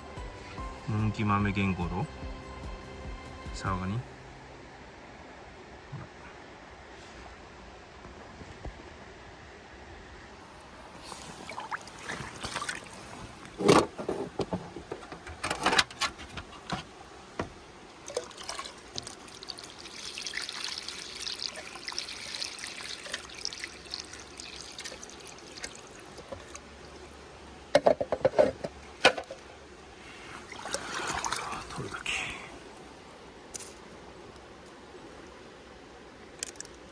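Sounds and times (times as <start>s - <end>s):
water splashing: 10.9s - 14.4s, 16.9s - 27.2s, 30.0s - 32.8s
water pouring: 11.0s - 14.1s, 18.0s - 27.2s, 30.2s - 32.2s.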